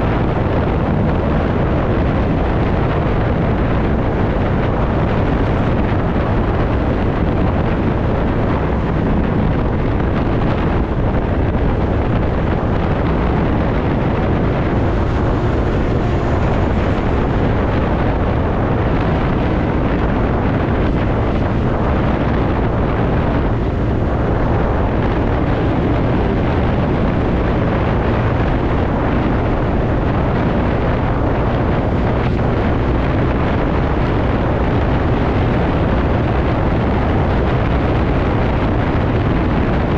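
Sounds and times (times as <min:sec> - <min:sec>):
road noise: 0:00.0 - 0:39.9
wind rushing over microphone: 0:00.0 - 0:39.9
scooter engine: 0:06.2 - 0:20.4.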